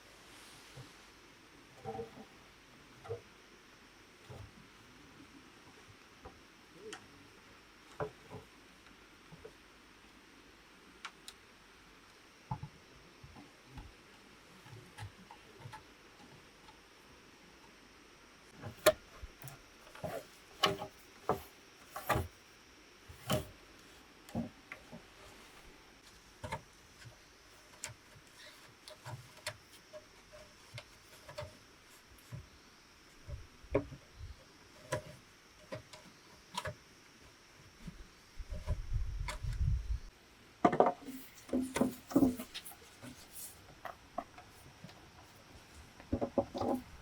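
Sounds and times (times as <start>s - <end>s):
knocks and taps on bamboo: 40.6s - 42.4s.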